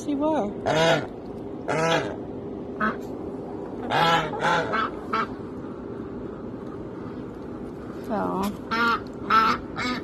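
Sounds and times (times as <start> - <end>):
goose honking: 0.6 - 1.1, 1.7 - 2.2, 3.8 - 5.3, 8.7 - 10.0.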